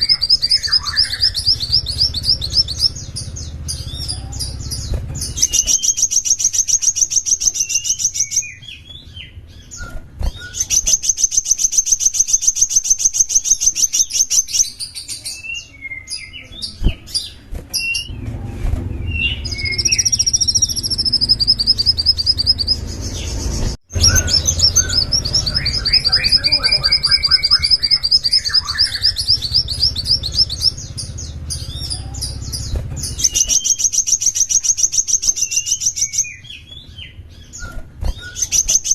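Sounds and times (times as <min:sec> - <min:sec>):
songbird trilling and chirping: 0:00.0 - 0:18.2, 0:18.9 - 0:38.9
faint low hum: 0:14.8 - 0:38.5.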